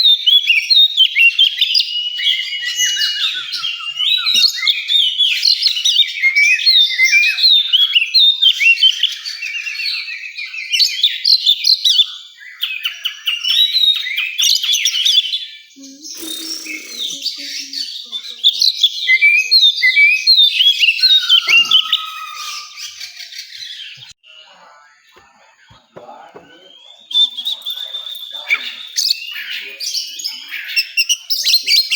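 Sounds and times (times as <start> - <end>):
bird singing chirps and trills: 0.0 - 31.9.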